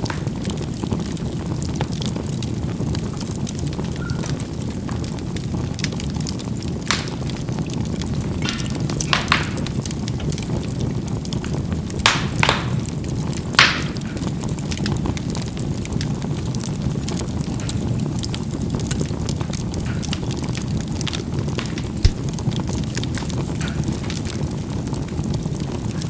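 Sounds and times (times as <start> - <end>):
charcoal crackling pops: 0.0 - 26.0
low rush of flame: 12.7 - 26.0.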